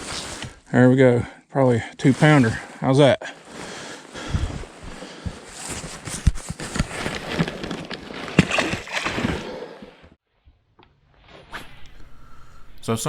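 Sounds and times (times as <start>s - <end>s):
water splashing and sloshing: 7.7s - 10.1s.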